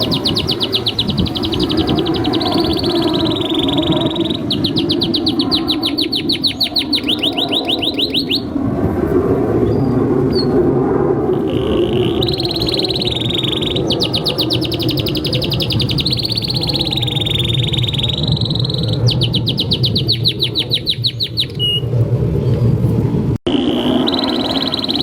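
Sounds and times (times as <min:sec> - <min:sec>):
canary singing trills: 0:00.0 - 0:08.6, 0:11.3 - 0:21.9, 0:23.5 - 0:25.0.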